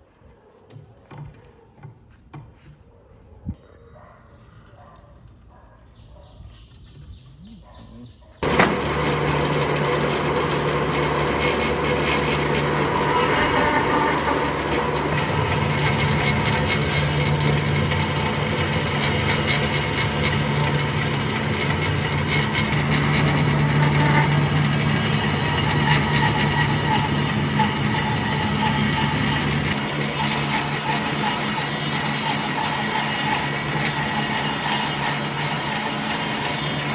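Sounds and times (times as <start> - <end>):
power tool running on wood: 8.4 - 36.9.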